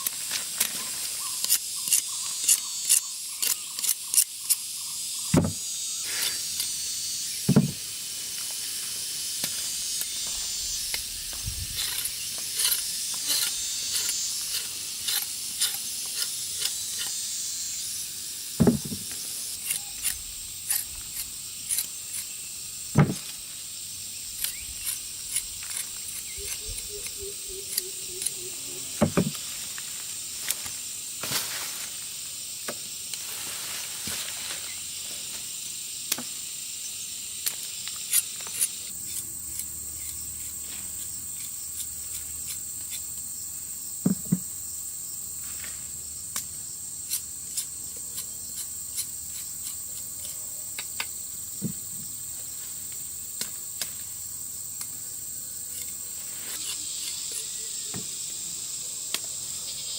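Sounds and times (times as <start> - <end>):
high-pitched insect chorus: 0.0 - 59.9
dull knocks: 5.4 - 5.6, 7.5 - 7.8, 18.6 - 19.0, 23.0 - 23.2.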